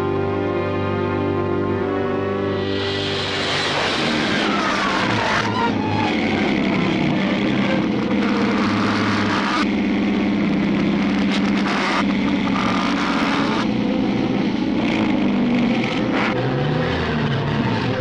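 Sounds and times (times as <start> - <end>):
reversed cartoon soundtrack: 0.4 - 9.6.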